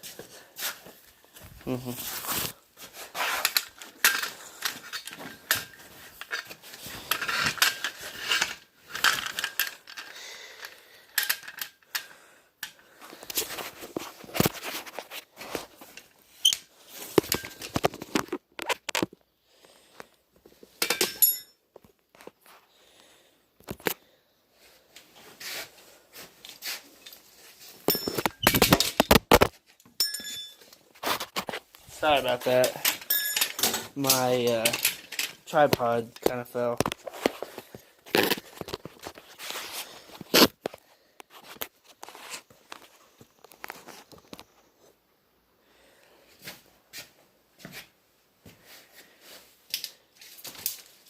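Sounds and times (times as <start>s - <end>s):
metal tools clanking and scraping: 20.8s - 21.6s, 27.8s - 29.1s, 30.0s - 30.8s, 32.0s - 35.4s
tripod falling over clattering: 27.8s - 31.6s.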